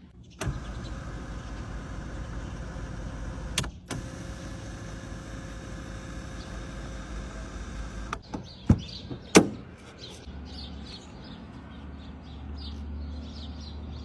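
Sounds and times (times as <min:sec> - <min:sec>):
vehicle hum: 0:00.0 - 0:08.5
small birds chirping: 0:06.0 - 0:14.0.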